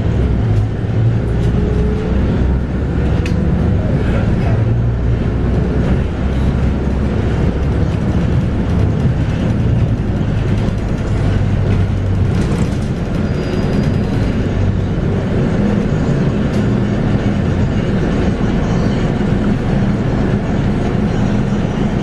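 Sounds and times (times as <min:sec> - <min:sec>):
bus diesel engine running: 0:00.0 - 0:22.0.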